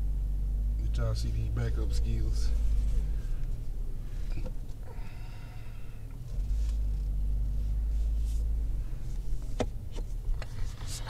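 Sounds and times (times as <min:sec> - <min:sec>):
car engine low rumble: 0:00.0 - 0:11.0.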